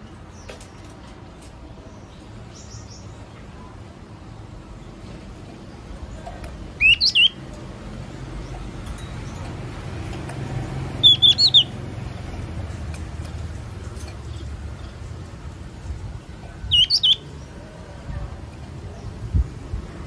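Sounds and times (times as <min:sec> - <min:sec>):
bird chirping: 0:06.8 - 0:07.4, 0:10.9 - 0:12.4, 0:16.5 - 0:17.6.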